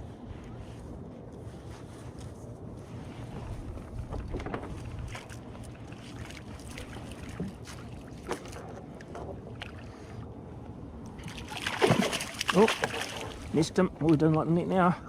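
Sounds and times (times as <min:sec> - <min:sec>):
wind buffeting microphone: 0:00.0 - 0:07.7.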